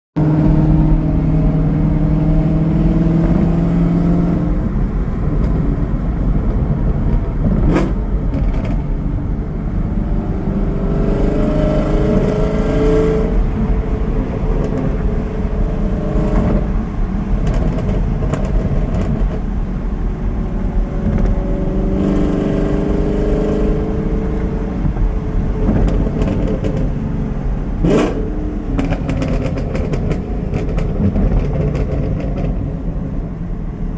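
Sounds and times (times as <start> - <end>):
car engine revving: 0.2 - 33.4
exhaust cracks: 27.8 - 32.8.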